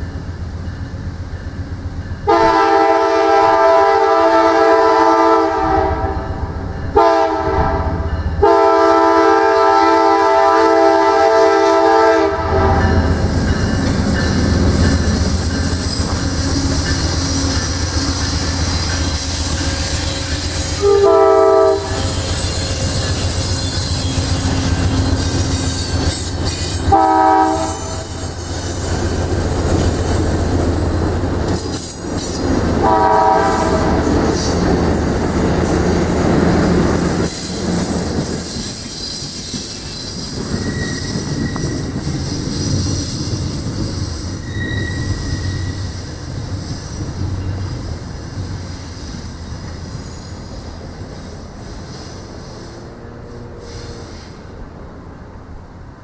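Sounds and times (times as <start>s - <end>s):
train passing rumble: 0.0s - 56.0s
train horn blasts: 2.2s - 13.1s, 19.9s - 25.1s, 26.8s - 28.4s, 32.8s - 34.5s
train wheel squeals: 12.6s - 54.6s.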